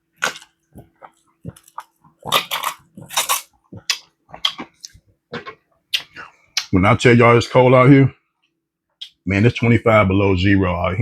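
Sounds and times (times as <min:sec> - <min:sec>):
crunchy bites and chewing: 0:00.0 - 0:05.0.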